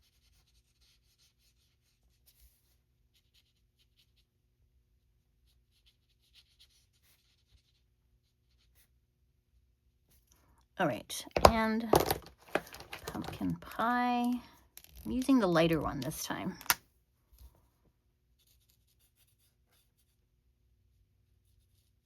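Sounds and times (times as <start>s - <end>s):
marker scratching on cardstock: 0.0s - 4.3s, 5.4s - 8.9s, 18.4s - 20.2s.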